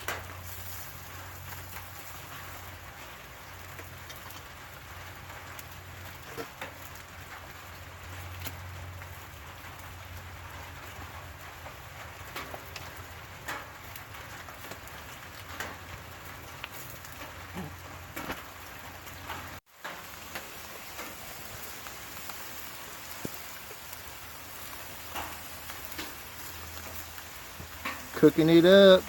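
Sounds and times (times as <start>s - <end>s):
rain hissing: 0.0s - 29.0s
raindrops ticking: 0.0s - 29.0s.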